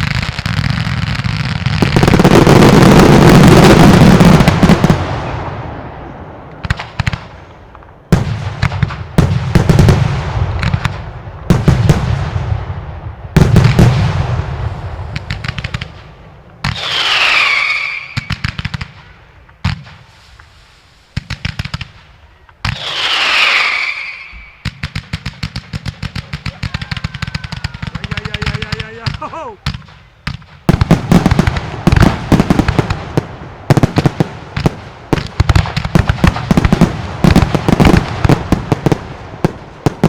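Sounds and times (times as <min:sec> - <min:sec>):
firework bangs: 0:00.0 - 0:40.0
firework cracks with booming tail: 0:00.0 - 0:40.0
falling whistle: 0:16.8 - 0:18.3, 0:22.8 - 0:24.6.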